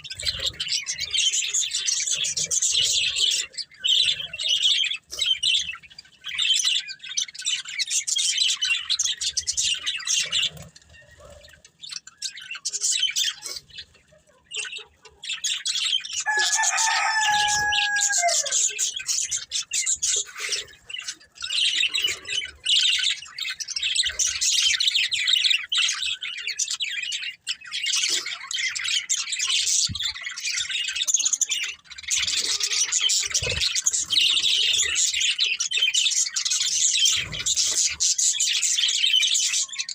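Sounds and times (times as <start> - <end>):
budgerigars chattering and chirping: 0.0 - 39.9
lower clearer bird call: 16.2 - 19.0.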